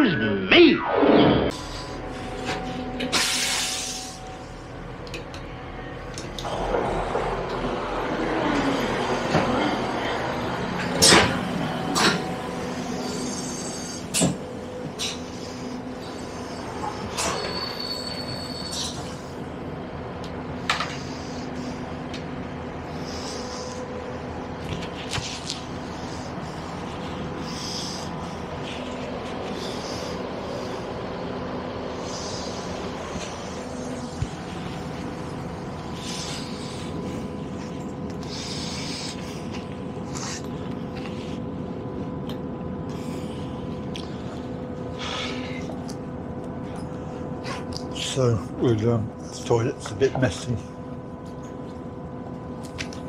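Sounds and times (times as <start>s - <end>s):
thin high whine: 0.0s - 10.2s, 10.8s - 19.7s
diesel train interior hum: 1.5s - 53.0s
train carriage rumble: 1.6s - 12.8s.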